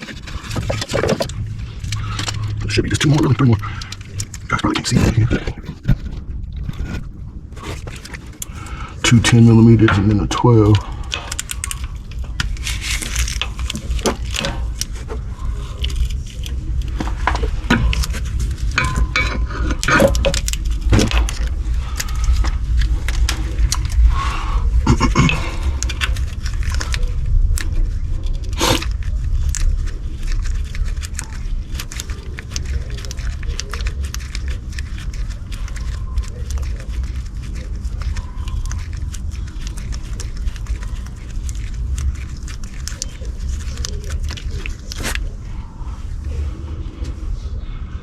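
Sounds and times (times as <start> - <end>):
low rumble: 0.0 - 48.0.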